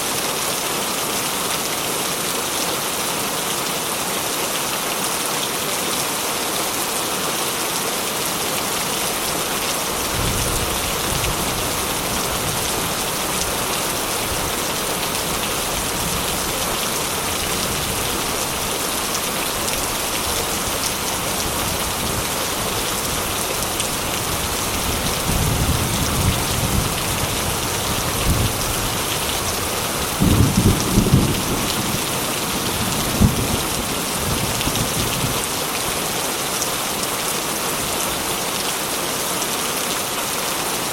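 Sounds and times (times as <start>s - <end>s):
heavy rain falling: 0.0s - 40.9s
thunder rumbling: 30.1s - 35.4s.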